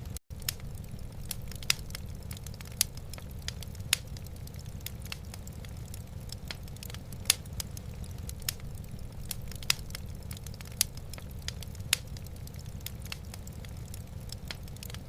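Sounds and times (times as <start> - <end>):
low rumble of fire: 0.0 - 15.0
sharp pops of fire: 0.0 - 15.0
wood fire crackling: 0.0 - 15.0.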